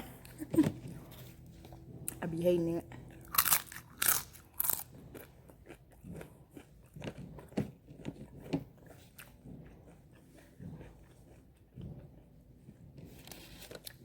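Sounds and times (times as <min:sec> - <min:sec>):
chewing with wet smacks: 0:02.8 - 0:14.0
crunchy bite: 0:03.2 - 0:07.6.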